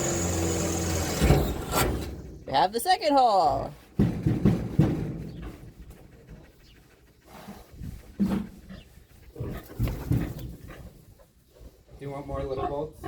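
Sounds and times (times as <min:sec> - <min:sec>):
pig grunting and snuffling: 0:03.7 - 0:13.0.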